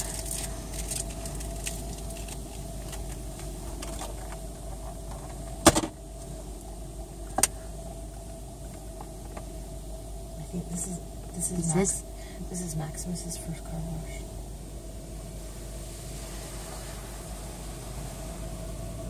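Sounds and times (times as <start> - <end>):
light crackling: 0.0 - 9.6
car wash low hum: 0.0 - 19.0
steady mid tone: 0.0 - 19.0.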